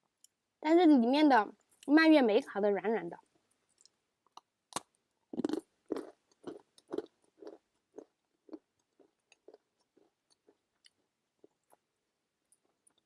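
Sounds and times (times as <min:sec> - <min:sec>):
crunchy chewing of biscotti: 0:03.8 - 0:13.0.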